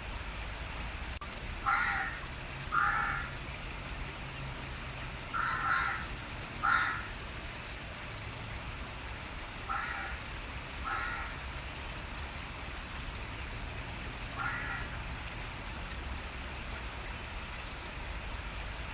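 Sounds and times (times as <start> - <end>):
running water rushing: 0.0 - 18.9
bird calls: 5.4 - 6.0, 6.6 - 7.1, 9.7 - 10.2, 10.8 - 11.3, 14.4 - 14.9.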